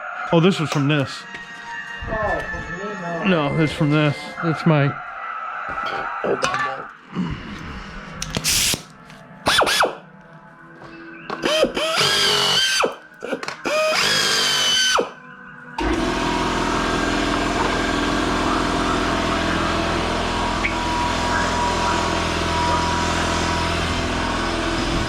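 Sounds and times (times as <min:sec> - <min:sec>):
power nibbler cutting metal: 0:11.4 - 0:15.2, 0:15.8 - 0:25.0
machine humming: 0:15.8 - 0:25.0.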